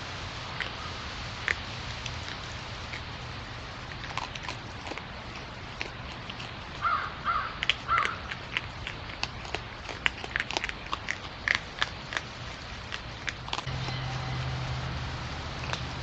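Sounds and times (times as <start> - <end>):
bird cawing: 6.8 - 8.2.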